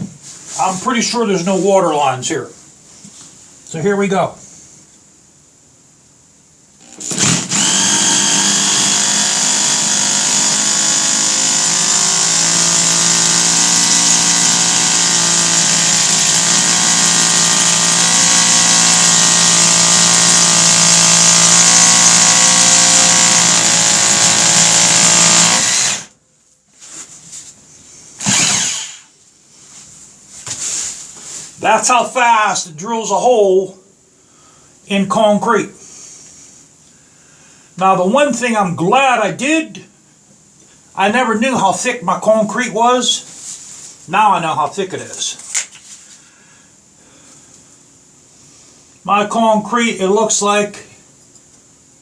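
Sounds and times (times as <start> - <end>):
hammer drill boring into concrete: 6.8 - 26.1, 28.2 - 29.1.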